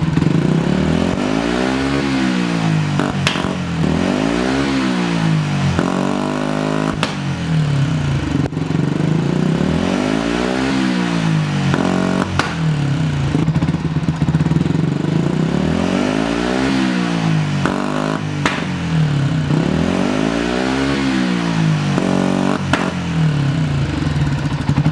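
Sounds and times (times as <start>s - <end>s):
exhaust backfire pops: 0.0s - 4.2s, 5.7s - 8.8s, 11.3s - 15.0s, 17.3s - 19.6s, 21.9s - 24.9s
motorcycle engine revving: 0.0s - 24.9s.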